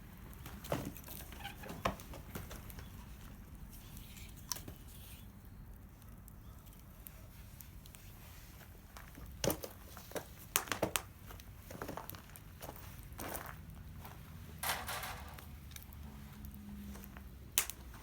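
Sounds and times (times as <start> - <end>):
sharp clicks and crackles: 14.6 - 18.0.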